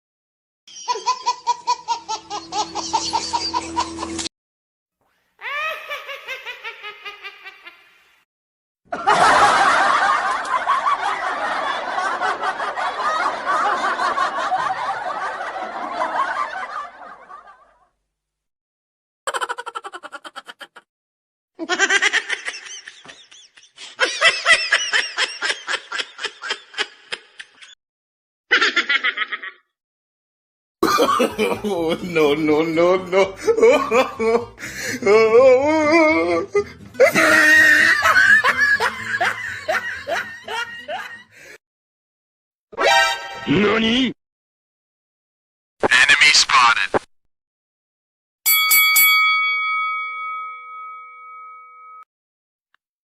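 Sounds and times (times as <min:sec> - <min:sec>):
person laughing: 0:00.8 - 0:04.3, 0:05.4 - 0:08.0, 0:19.3 - 0:20.9, 0:21.6 - 0:27.7, 0:30.8 - 0:41.2.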